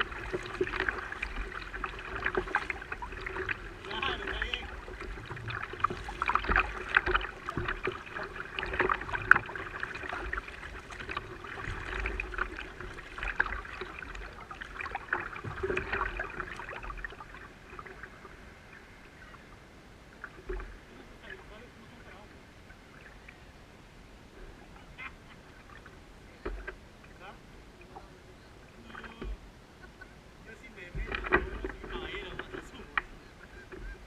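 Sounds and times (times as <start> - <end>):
water splashing from paddling: 0.0 - 23.5, 24.4 - 34.0.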